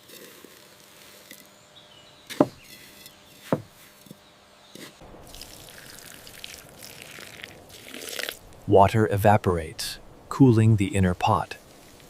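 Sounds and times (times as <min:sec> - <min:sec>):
soft steady hiss: 0:05.0 - 0:12.0.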